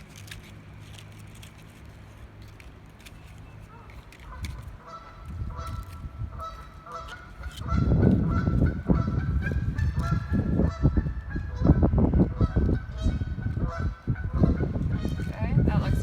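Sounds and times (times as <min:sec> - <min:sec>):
geese honking: 0:03.7 - 0:16.0
wind rumble on microphone: 0:03.7 - 0:16.0.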